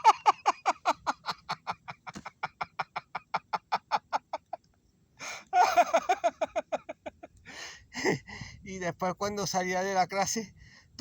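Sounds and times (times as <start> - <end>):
person laughing in rapid bursts: 0.0 - 4.6, 5.5 - 7.4.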